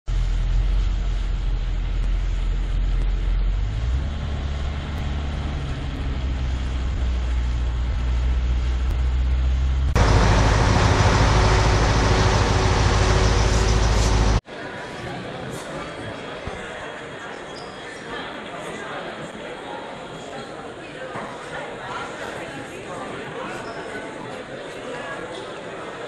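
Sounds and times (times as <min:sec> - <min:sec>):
large engine running: 0:00.1 - 0:14.4.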